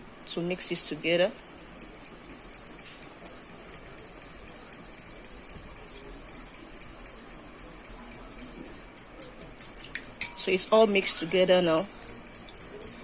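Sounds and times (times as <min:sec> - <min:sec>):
fork beating in a bowl: 0:01.3 - 0:13.0.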